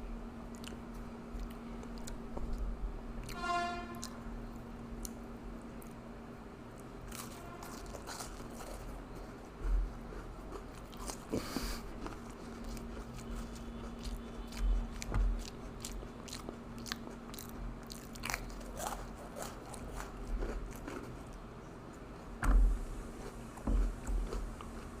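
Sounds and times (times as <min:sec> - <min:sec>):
faint steady hum: 0:00.0 - 0:25.0
cookies crunching while chewed: 0:06.7 - 0:22.1.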